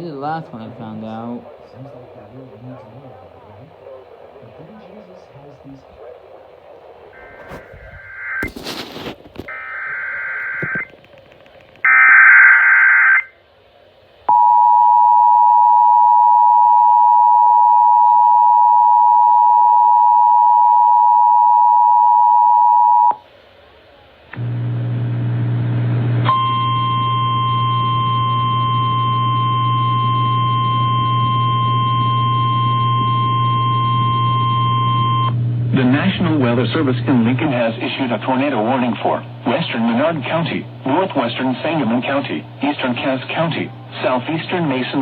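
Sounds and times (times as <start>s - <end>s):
low steady buzz: 22.9s - 45.0s.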